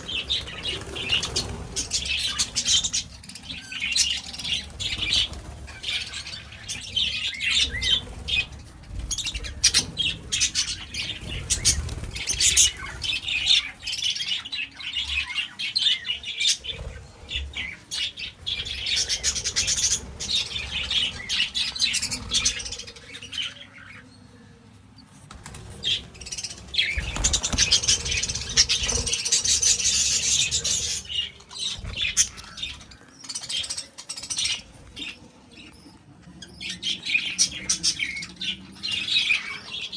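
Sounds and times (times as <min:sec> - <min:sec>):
wings flapping: 0:00.0 - 0:14.2, 0:16.6 - 0:22.9, 0:25.3 - 0:33.0
birds chattering and squawking: 0:00.0 - 0:39.9.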